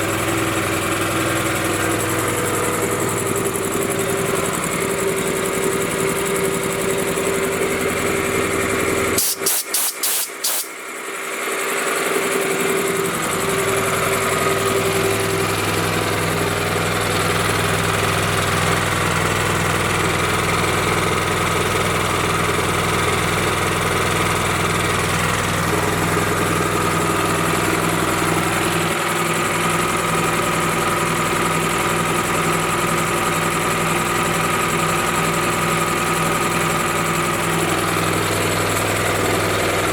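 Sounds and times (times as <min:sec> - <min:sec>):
air compressor engine running: 0:00.0 - 0:39.9
sharp clicks: 0:09.2 - 0:10.8.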